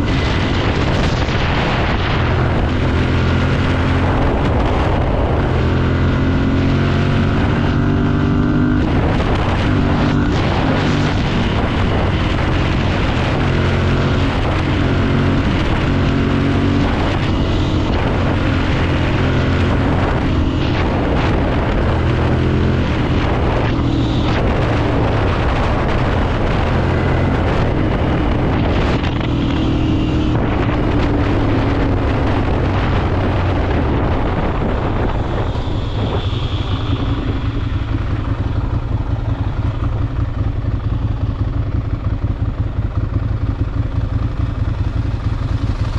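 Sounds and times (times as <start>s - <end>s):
motorcycle engine running: 0.0s - 45.9s
wind noise on microphone: 0.0s - 45.9s.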